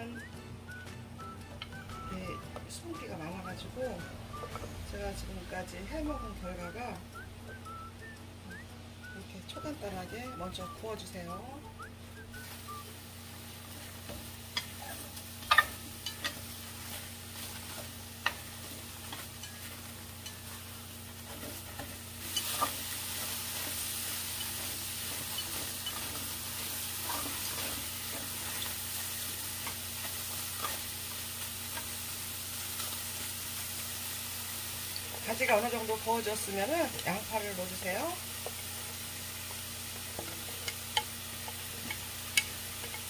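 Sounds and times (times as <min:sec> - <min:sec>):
eggplant sizzling in a pan: 0:00.0 - 0:43.0
chopsticks clicking against pan: 0:14.2 - 0:20.6, 0:21.2 - 0:30.9, 0:40.0 - 0:43.0.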